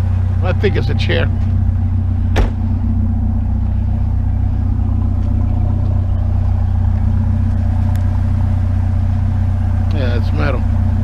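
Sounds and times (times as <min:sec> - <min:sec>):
vehicle engine idling: 0:00.0 - 0:11.0
sharp knock: 0:02.4 - 0:02.6.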